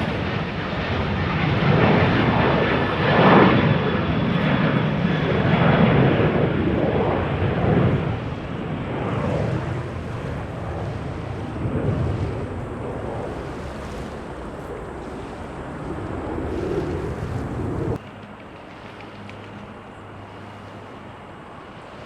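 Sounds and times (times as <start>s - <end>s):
wind on the microphone: 0.0s - 18.0s
jet engine rumble: 0.0s - 22.0s.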